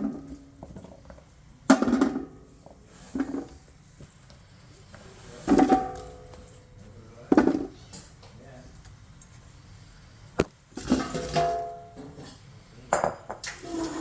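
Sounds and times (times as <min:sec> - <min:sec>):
cooking pot knocked and set down: 0:01.7 - 0:02.4, 0:10.8 - 0:12.2, 0:12.9 - 0:13.5.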